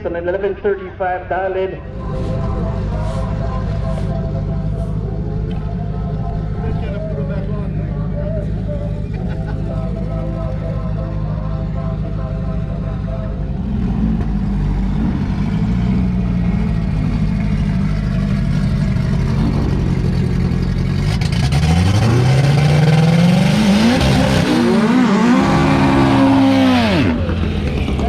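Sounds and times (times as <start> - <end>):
drag racing car engines: 0.0 - 28.0.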